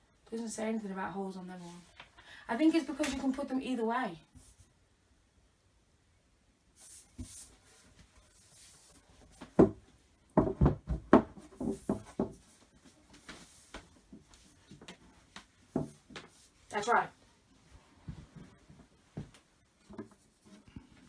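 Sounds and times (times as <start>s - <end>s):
rubbing and rustling: 6.8s - 21.0s
wooden knocks and clatters: 9.4s - 12.5s.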